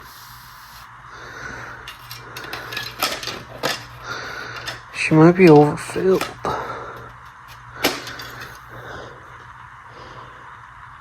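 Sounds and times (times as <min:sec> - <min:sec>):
steady low hum: 0:00.0 - 0:11.0
hard objects knocking: 0:01.9 - 0:08.6.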